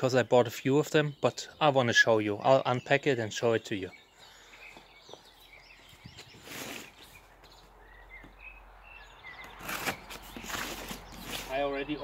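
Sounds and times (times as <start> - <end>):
small birds chirping: 0.0 - 12.0
rustling: 6.2 - 7.6, 9.4 - 11.8.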